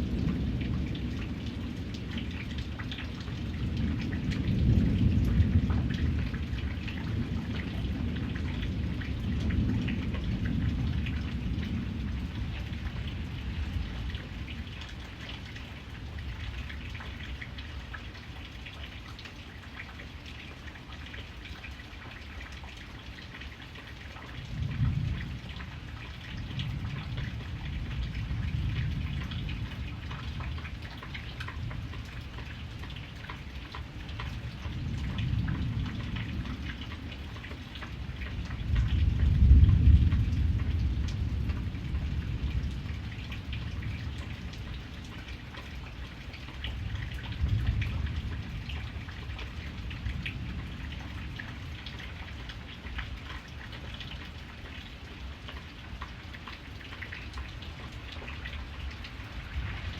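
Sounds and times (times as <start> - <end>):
rolling thunder: 0.0 - 14.4, 26.3 - 30.8, 38.1 - 44.5, 46.8 - 51.7
rain pattering: 0.0 - 59.9.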